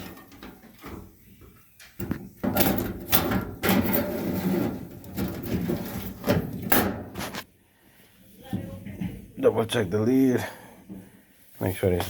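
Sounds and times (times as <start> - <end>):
plastic scraping and rattling: 0.0 - 7.5.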